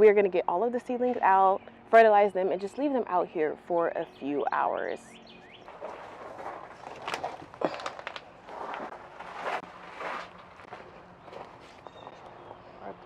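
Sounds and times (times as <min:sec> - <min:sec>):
rustling: 0:05.6 - 0:12.2
footsteps: 0:05.6 - 0:12.6.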